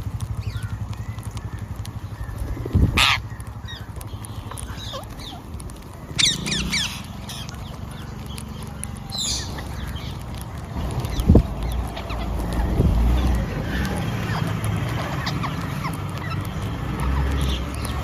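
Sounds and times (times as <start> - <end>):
parrot squawking: 2.9 - 3.2, 6.2 - 7.5.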